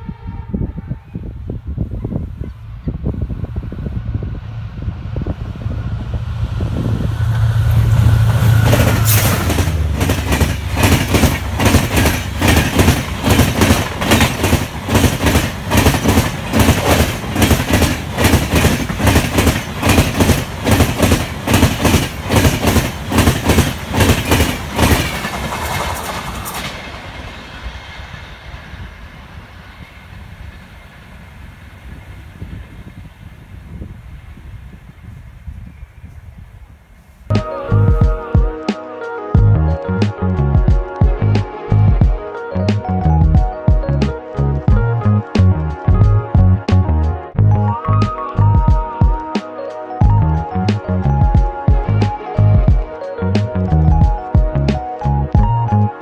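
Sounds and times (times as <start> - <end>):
diesel locomotive engine droning: 0.0 - 48.6, 49.5 - 56.0
wheels clacking over rail joints: 8.2 - 31.2.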